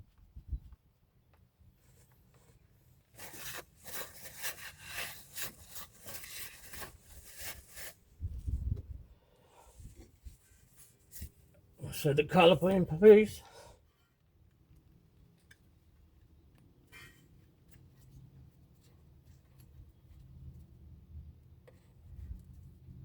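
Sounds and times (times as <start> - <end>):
rubbing and scraping strokes: 1.9 - 8.0.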